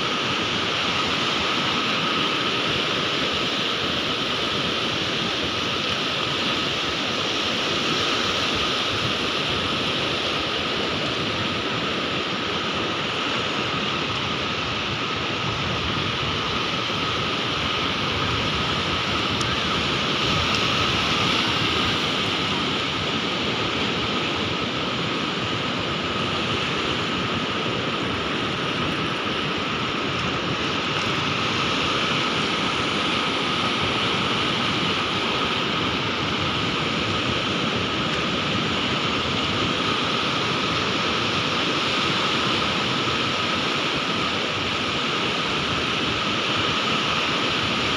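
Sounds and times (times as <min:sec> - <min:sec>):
sea waves breaking: 0:00.0 - 0:47.9.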